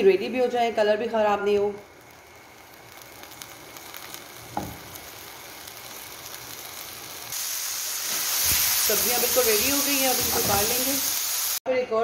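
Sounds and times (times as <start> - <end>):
vegetables sizzling in oil: 0.0 - 11.6
light crackles: 1.4 - 7.4.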